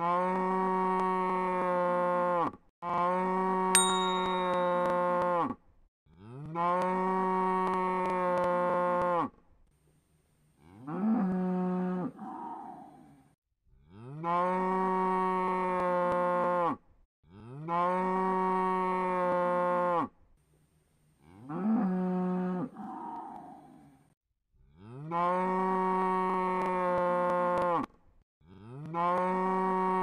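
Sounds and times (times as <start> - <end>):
cow mooing: 24.8 - 27.9.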